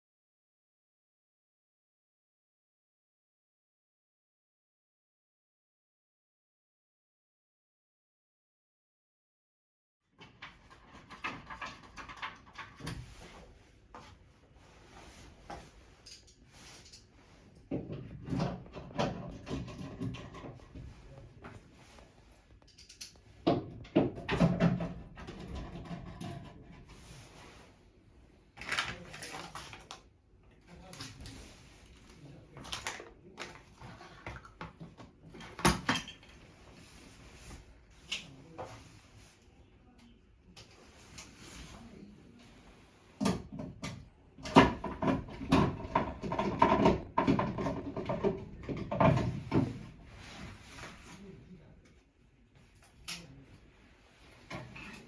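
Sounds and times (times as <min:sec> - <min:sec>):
handling noises with clicks: 0:18.3 - 0:23.4, 0:28.6 - 0:30.1.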